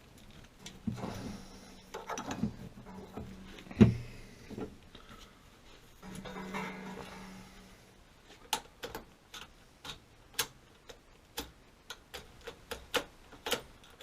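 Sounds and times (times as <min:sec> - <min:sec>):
sharp irregular clicks: 0:08.4 - 0:14.0.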